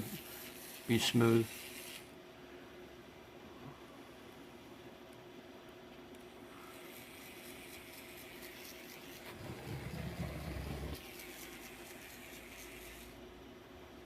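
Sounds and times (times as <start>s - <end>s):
toy electric motor whirring: 0.0s - 2.1s, 6.6s - 13.2s.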